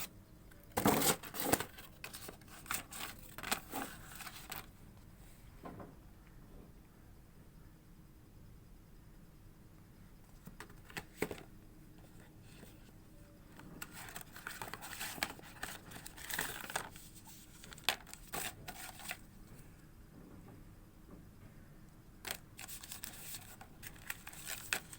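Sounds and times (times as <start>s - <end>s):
packaging rustling: 0.8s - 4.7s, 13.5s - 19.2s, 22.3s - 24.9s
packaging clicks: 13.6s - 19.2s, 22.2s - 24.9s.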